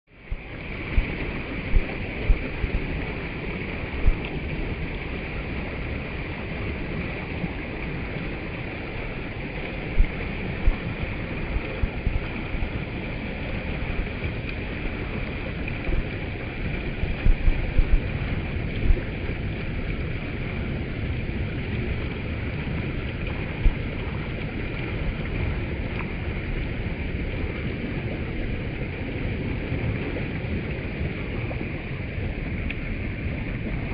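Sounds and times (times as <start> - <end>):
stream water rushing: 0.1 - 33.9
low thumps: 10.0 - 10.9, 17.1 - 18.1.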